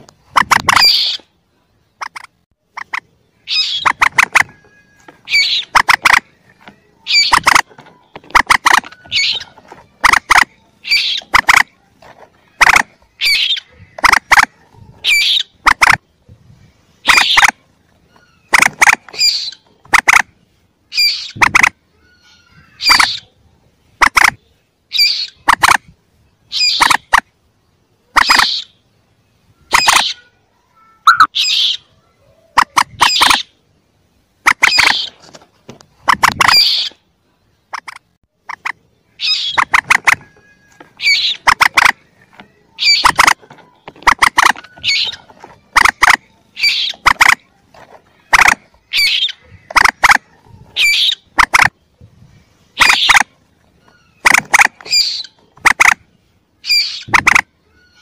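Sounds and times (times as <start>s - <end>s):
young moorhen calls: 0.0s - 1.4s, 2.0s - 11.8s, 12.4s - 16.1s, 17.0s - 20.3s, 20.9s - 23.4s, 24.0s - 25.8s, 26.4s - 27.2s, 28.0s - 28.8s, 29.6s - 33.6s, 34.5s - 35.2s, 36.0s - 37.1s, 37.7s - 51.8s, 52.7s - 58.0s.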